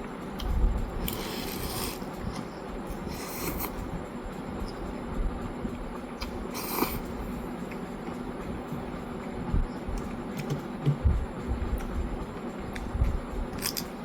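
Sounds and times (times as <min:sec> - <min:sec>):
person slurping noodles: 0:01.1 - 0:02.1, 0:03.1 - 0:03.8, 0:06.5 - 0:07.1.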